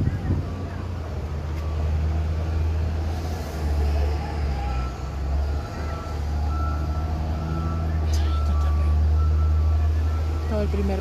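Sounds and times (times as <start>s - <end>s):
heavy vehicle engine running: 0.0s - 11.0s
reversing alarm beeping: 4.6s - 11.0s.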